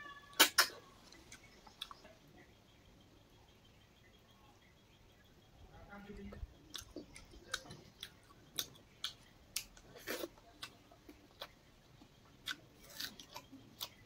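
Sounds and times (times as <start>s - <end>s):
person chewing and crunching: 0.3s - 2.1s, 6.7s - 14.0s.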